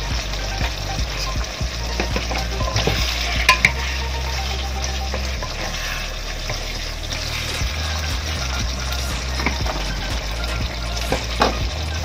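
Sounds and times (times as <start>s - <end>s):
food sizzling in a wok: 0.0s - 12.0s
utensil tapping a pan: 0.6s - 3.8s
wooden utensil scraping a pan: 1.1s - 11.6s.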